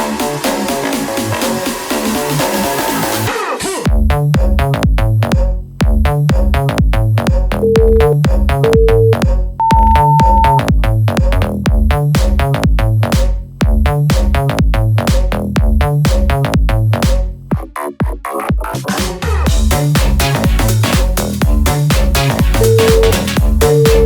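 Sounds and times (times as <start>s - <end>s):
electronic dance music: 0.0s - 3.3s, 7.6s - 11.4s, 14.0s - 15.3s, 15.9s - 24.0s
interval timer beeps: 7.6s - 10.6s, 22.6s - 24.0s.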